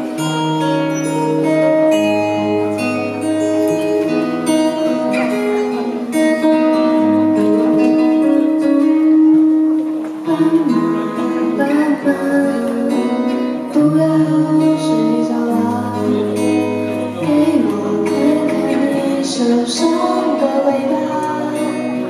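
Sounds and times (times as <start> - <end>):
instrumental guitar music: 0.0 - 22.0.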